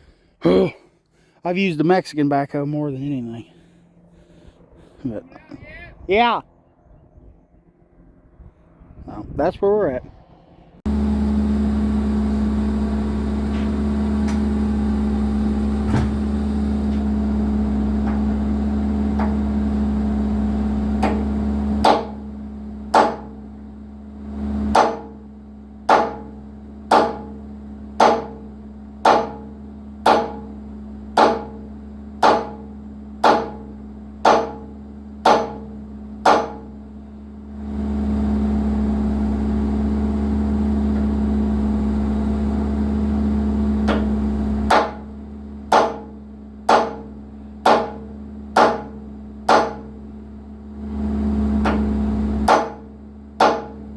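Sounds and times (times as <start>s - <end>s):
excavator engine running: 0.0s - 9.2s, 9.8s - 53.9s
sharp hammer-like blows: 21.8s - 22.2s, 22.9s - 23.4s, 24.7s - 25.2s, 25.9s - 27.4s, 28.0s - 30.5s, 31.2s - 31.6s, 32.2s - 36.8s, 44.7s - 45.1s, 45.7s - 50.0s, 52.4s - 53.8s.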